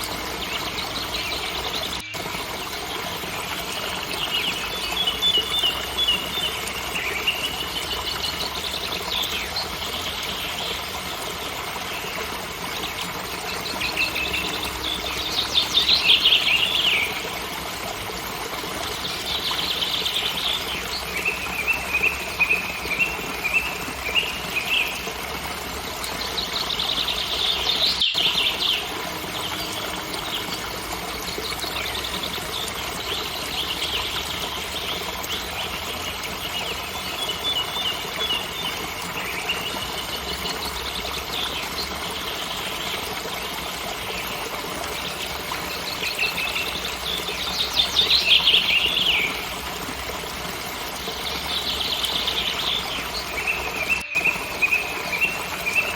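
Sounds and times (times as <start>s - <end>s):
waterfall rushing: 27.8s - 37.6s, 43.2s - 55.9s.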